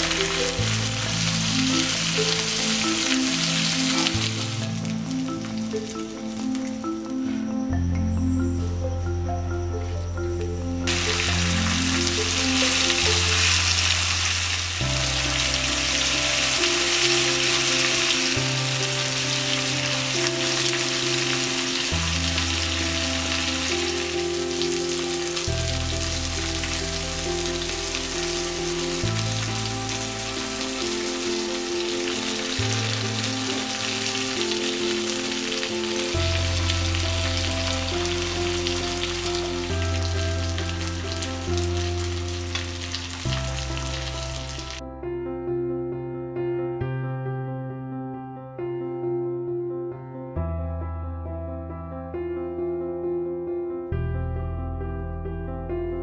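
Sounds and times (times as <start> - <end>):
prawns sizzling in oil: 0.0 - 6.9, 10.9 - 44.8
background music: 0.0 - 56.0.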